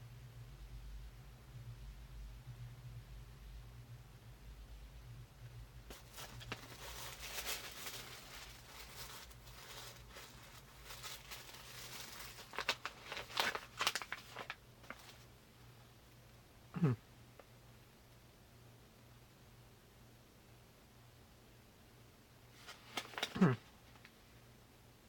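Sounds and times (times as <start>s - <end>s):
packaging crinkling and tearing: 5.9s - 15.3s, 22.6s - 24.1s.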